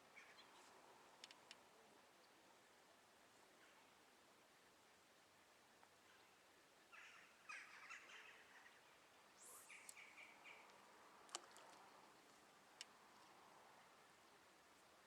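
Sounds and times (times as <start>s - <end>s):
faint harsh bird calls: 6.9s - 10.9s.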